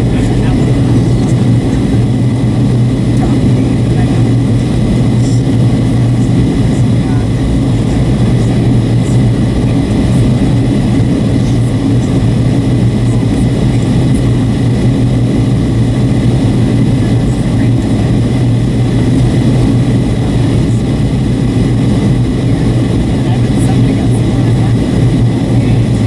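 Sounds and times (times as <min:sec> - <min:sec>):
airliner cabin drone: 0:00.0 - 0:26.0
faint high whine: 0:00.0 - 0:26.0.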